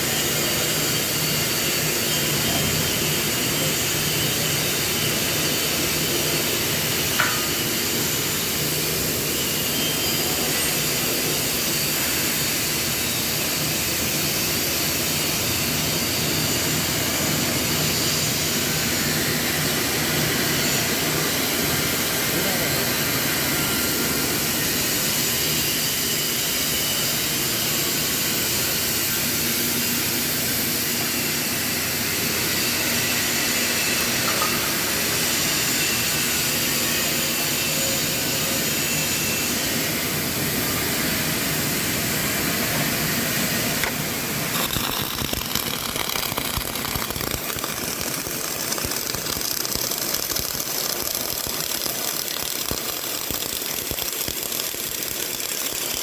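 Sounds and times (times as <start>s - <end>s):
welding arc crackling: 2.9s - 9.7s, 43.2s - 56.0s.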